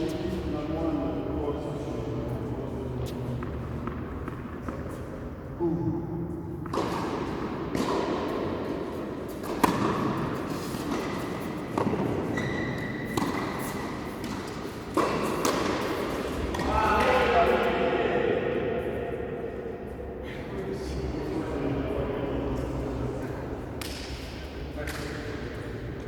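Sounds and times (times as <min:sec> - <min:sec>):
tennis balls bouncing on court: 0:06.6 - 0:17.6
tennis balls struck by rackets: 0:06.6 - 0:17.6, 0:23.8 - 0:25.2.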